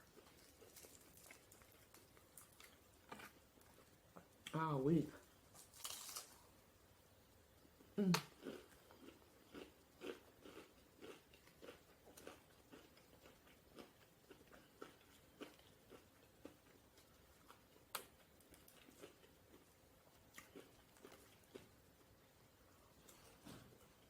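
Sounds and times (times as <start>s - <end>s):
person chewing: 0.0s - 4.4s, 5.6s - 6.5s, 8.1s - 21.8s.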